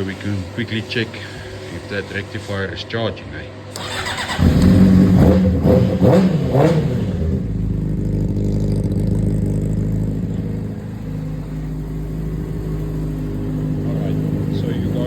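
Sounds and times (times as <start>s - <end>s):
motorcycle engine revving and idling: 3.8s - 15.0s.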